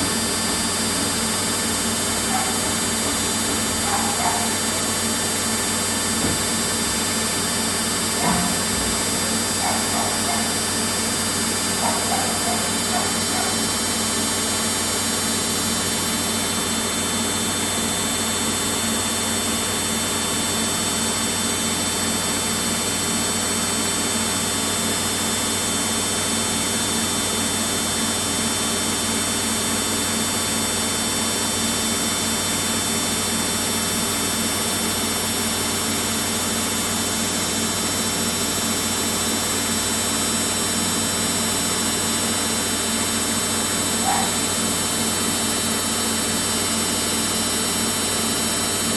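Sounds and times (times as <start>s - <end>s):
washing machine drum spinning: 0.0s - 14.5s.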